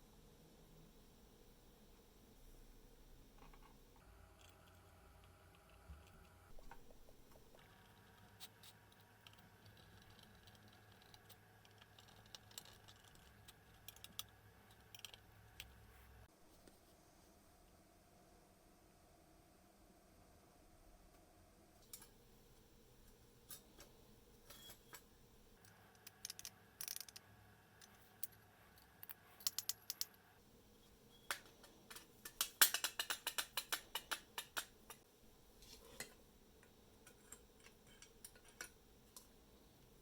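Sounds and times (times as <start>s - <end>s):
clicks of small parts and tools: 24.5s - 27.2s, 27.8s - 30.2s, 31.3s - 35.0s.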